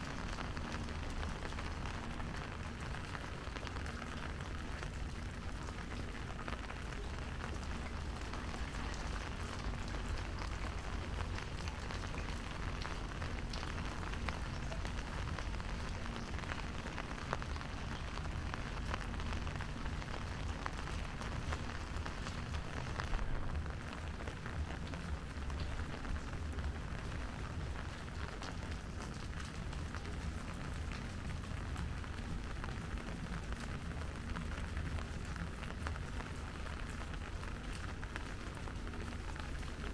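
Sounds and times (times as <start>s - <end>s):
low continuous rumble: 0.0s - 39.9s
steady rain falling: 0.0s - 39.9s.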